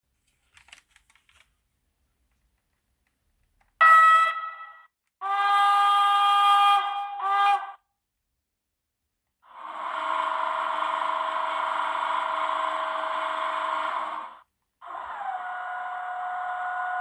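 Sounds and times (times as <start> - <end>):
diesel locomotive horn through small speakers: 3.8 - 7.8.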